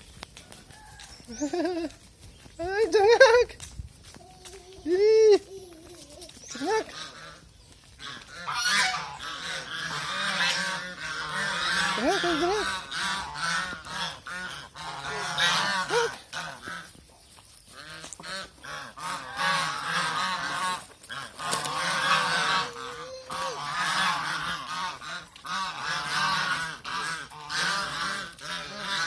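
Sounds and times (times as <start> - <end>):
geese honking: 6.6 - 29.0.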